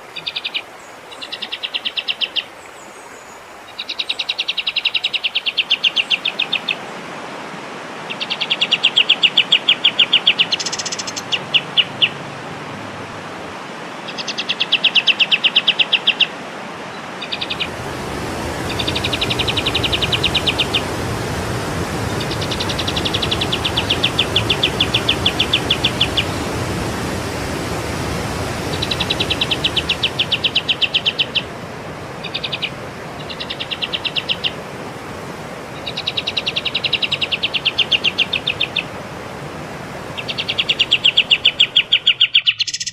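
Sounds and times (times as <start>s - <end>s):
songbird buzzy trills: 17.2s - 34.7s, 35.7s - 39.0s, 40.0s - 42.9s
rushing background noise: 17.2s - 42.0s.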